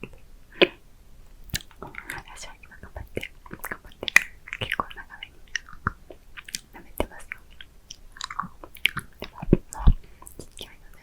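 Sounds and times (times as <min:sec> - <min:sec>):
licking and sucking candy: 0:01.4 - 0:10.8
soft whispering: 0:01.7 - 0:05.6, 0:06.5 - 0:07.7, 0:09.0 - 0:11.0.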